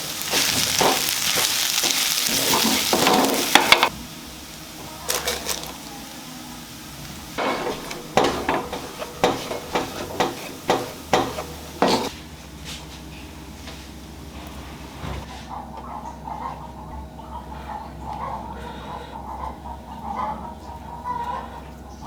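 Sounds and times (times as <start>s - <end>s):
food sizzling in frying pan: 0.0s - 12.1s.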